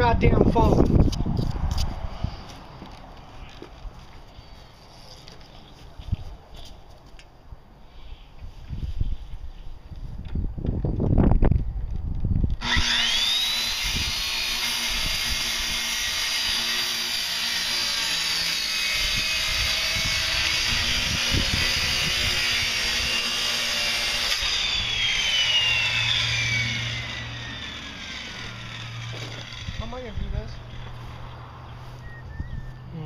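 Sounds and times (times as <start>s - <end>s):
saw blade winding down: 12.6s - 31.0s
circular saw cutting wood: 12.6s - 31.3s.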